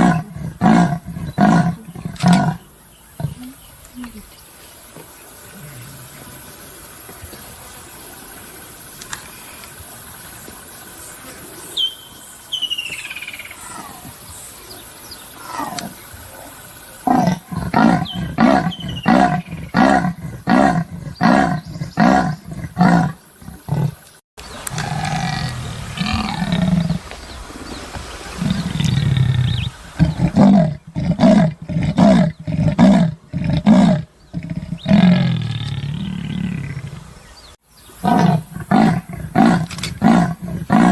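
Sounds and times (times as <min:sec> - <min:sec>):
bird chirping: 0:11.1 - 0:16.5, 0:17.1 - 0:30.9.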